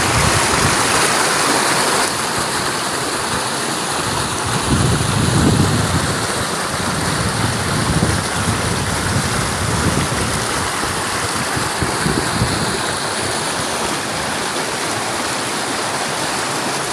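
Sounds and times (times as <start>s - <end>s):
wind gusts on microphone: 0.0s - 1.2s, 4.0s - 14.3s
flowing water rushing: 0.0s - 16.9s.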